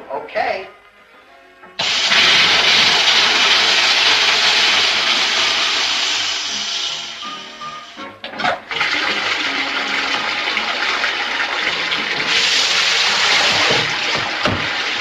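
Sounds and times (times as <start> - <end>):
plumbing rushing hiss: 1.8 - 8.2, 11.7 - 15.0.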